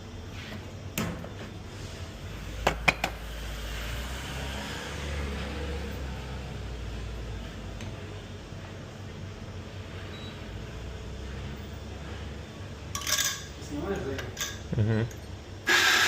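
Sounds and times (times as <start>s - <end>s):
espresso machine humming: 15.6s - 16.0s.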